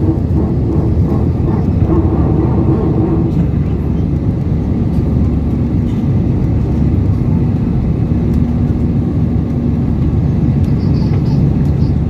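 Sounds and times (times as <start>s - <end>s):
airliner cabin engine roar: 0.0s - 12.0s.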